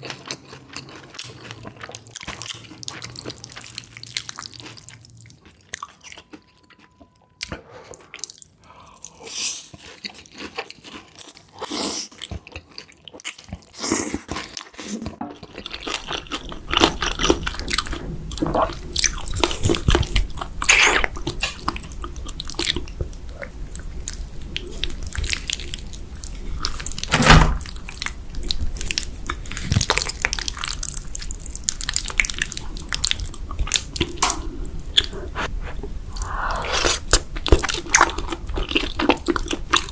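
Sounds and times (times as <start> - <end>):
chewing and biting cheese: 0.0 - 34.3, 36.1 - 39.9
wet mouth clicks: 36.1 - 38.1.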